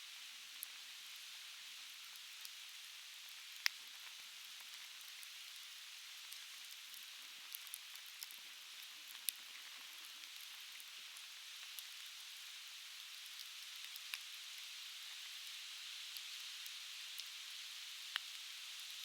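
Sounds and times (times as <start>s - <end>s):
logs crackling in a fire pit: 3.3s - 12.3s, 12.9s - 15.5s, 18.0s - 18.4s.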